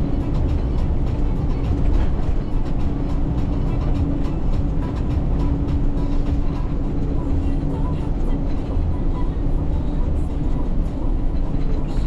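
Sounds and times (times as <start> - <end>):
constant hum: 0.0 - 12.0
truck engine and road rumble: 0.0 - 12.0.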